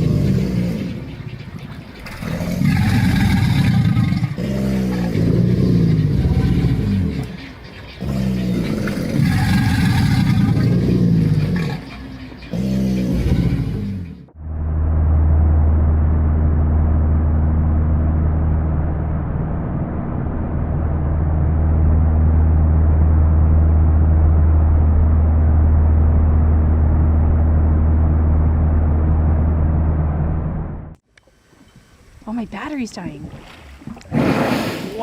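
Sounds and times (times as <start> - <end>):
loud low hum: 8.0 - 31.0.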